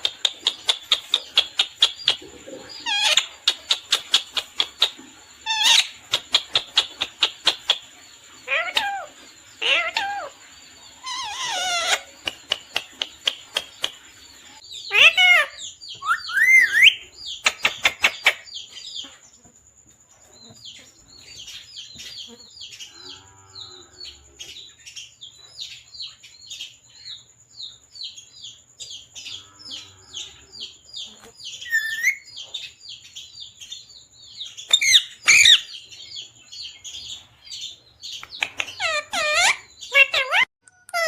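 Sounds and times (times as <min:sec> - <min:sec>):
parrot chirping: 0:00.0 - 0:10.4, 0:11.0 - 0:14.0, 0:14.6 - 0:18.7, 0:31.1 - 0:32.6, 0:34.6 - 0:36.2, 0:38.1 - 0:41.0.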